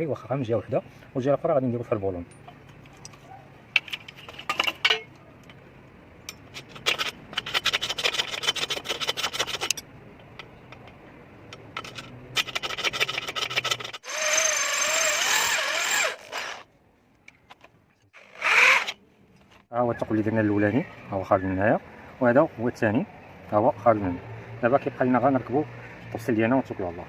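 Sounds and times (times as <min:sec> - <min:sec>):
scraping steel by hand: 0:06.4 - 0:09.8, 0:11.8 - 0:16.6
electric drill boring steel: 0:14.0 - 0:16.6, 0:18.2 - 0:19.0.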